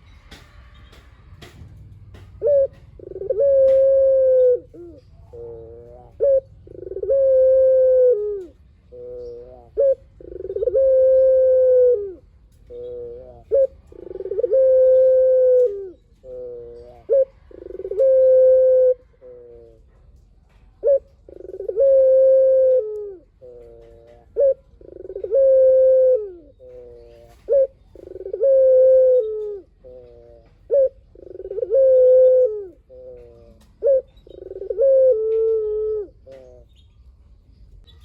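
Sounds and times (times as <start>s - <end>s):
dove cooing: 2.1s - 20.2s, 20.8s - 36.8s.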